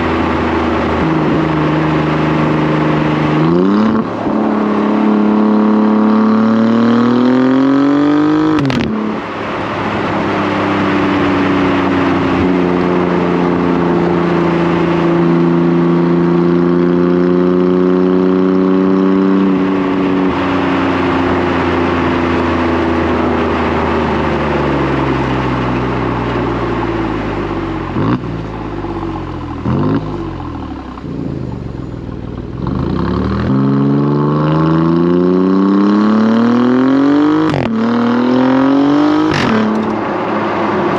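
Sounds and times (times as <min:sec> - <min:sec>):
car exhaust revving: 0:00.0 - 0:40.9.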